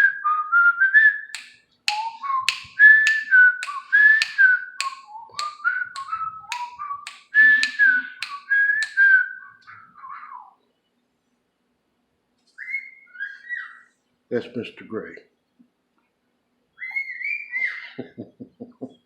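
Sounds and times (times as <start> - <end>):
bird whistling a tune: 1.9 - 6.8.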